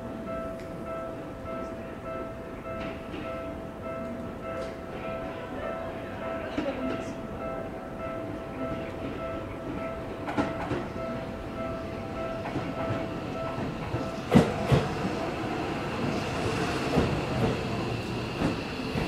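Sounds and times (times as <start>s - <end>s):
train rumble: 0.0s - 19.0s
train wheels clacking over rail joints: 12.4s - 15.2s.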